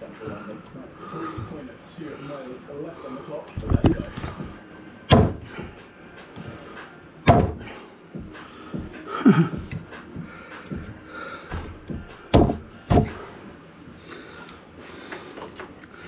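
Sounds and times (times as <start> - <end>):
sharp wood knocks: 3.6 - 4.5, 5.1 - 5.5, 7.3 - 7.7, 11.5 - 13.2.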